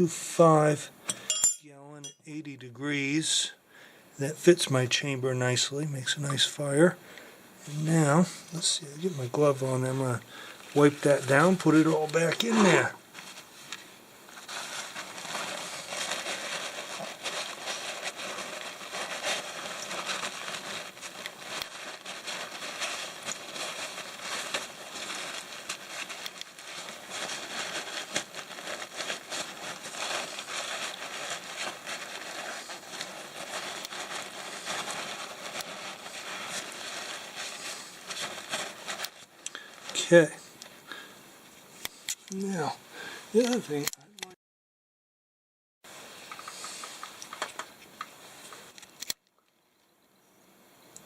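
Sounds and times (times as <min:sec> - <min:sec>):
rag rustling and crinkling: 0:07.6 - 0:44.0, 0:45.9 - 0:49.4.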